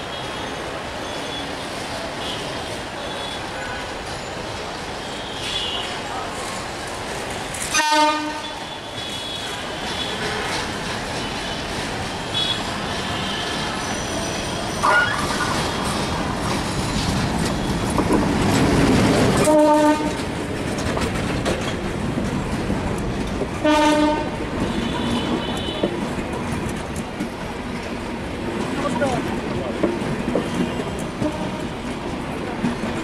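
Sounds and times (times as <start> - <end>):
diesel locomotive engine rumbling: 0.0 - 33.0
train horn blasts: 7.7 - 10.4, 19.4 - 20.2, 23.6 - 25.8, 30.4 - 31.7.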